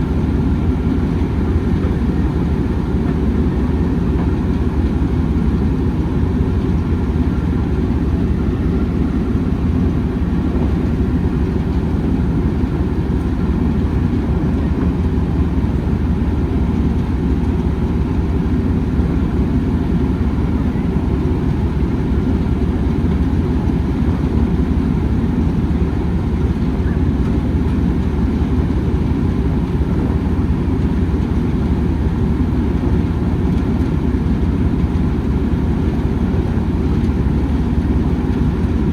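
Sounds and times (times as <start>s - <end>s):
train rumbling: 0.0s - 38.9s.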